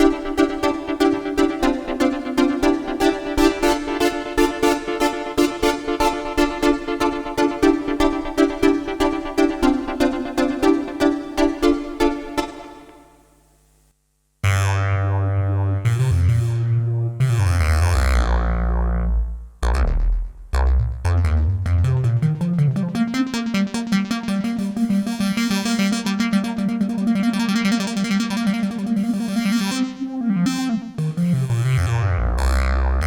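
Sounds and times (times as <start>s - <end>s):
deep synth bass notes: 0.0s - 12.8s, 14.4s - 33.0s
fast repeating synth notes: 0.0s - 13.0s
held synth tone: 0.0s - 13.1s.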